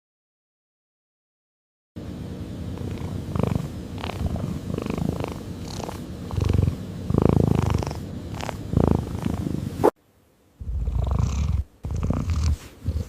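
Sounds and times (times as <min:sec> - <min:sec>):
cat purring: 0:02.7 - 0:10.0, 0:10.6 - 0:13.0.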